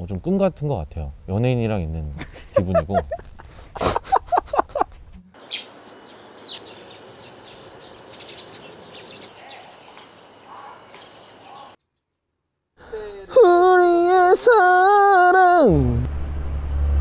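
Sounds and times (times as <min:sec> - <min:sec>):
outdoor background hiss: 0:00.0 - 0:16.9
small birds chirping: 0:05.3 - 0:12.2.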